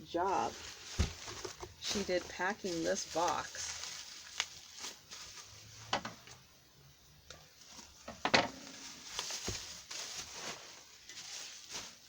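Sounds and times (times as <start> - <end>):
packing crinkling: 0.2 - 5.7, 8.6 - 12.0.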